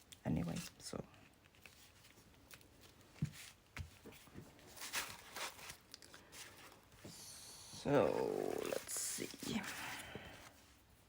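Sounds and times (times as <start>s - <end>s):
paper rustling: 1.4s - 7.4s, 8.0s - 10.9s.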